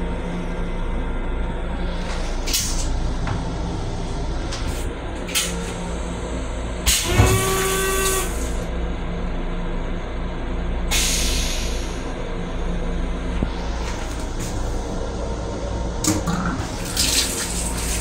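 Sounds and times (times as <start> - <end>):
train rumble and hum: 0.0 - 18.0
brief whine-like tone: 6.9 - 8.6.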